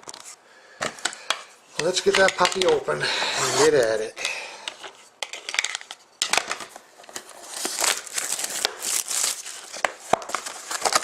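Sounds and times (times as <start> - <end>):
plastic wrapping crinkling and tearing: 5.3 - 11.0.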